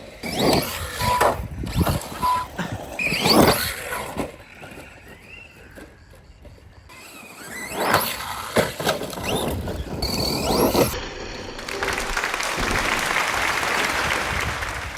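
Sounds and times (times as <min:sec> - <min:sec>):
tyre squeals: 0:00.0 - 0:11.0
rc truck motor whining: 0:00.0 - 0:14.0.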